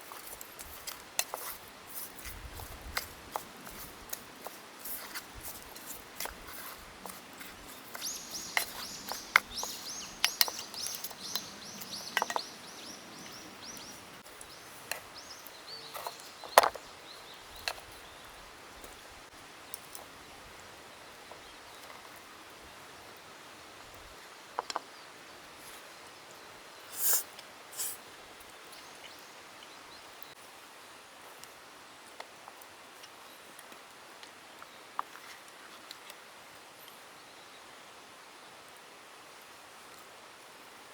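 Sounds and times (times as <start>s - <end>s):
outdoor background noise: 0.0s - 40.9s
bird singing falling notes: 7.9s - 17.7s
short hissy bursts: 26.9s - 28.0s.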